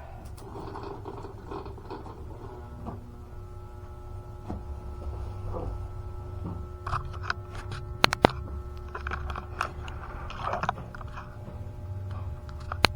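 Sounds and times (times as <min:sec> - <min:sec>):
steady low hum: 0:00.0 - 0:12.9
scraping and rustling: 0:00.3 - 0:12.9
sharp clicks: 0:06.8 - 0:11.3, 0:12.4 - 0:12.9.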